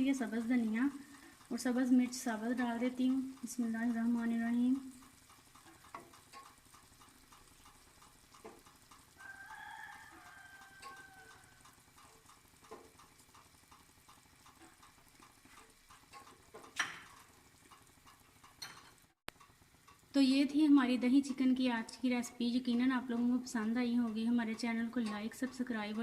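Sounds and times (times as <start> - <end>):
curry sizzling in a pan: 0.0 - 26.0
rooster crowing: 9.2 - 11.6.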